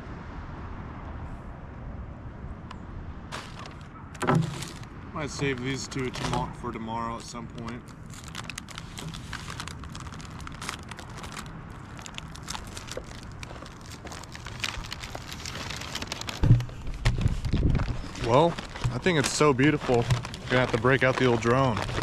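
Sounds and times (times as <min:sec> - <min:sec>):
plastic package crinkling: 0:03.3 - 0:06.5, 0:07.1 - 0:22.0
low thumps: 0:16.3 - 0:20.7.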